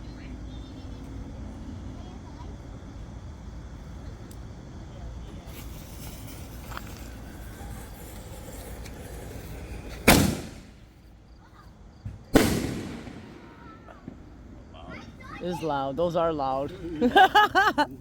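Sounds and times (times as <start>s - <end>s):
firework bangs: 5.3s - 15.4s.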